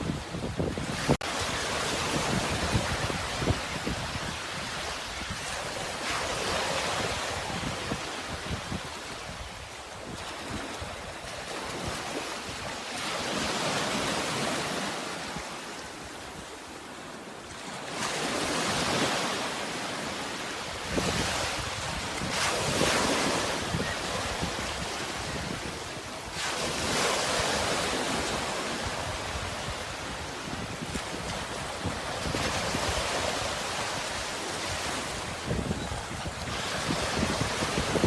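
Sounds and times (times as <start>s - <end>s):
sea surf washing in: 17.8s - 38.0s.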